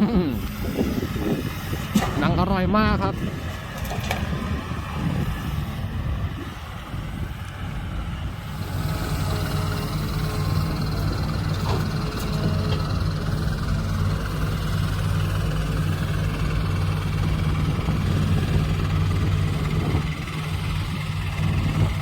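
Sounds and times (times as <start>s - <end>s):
dump truck diesel engine under load: 0.0s - 22.0s.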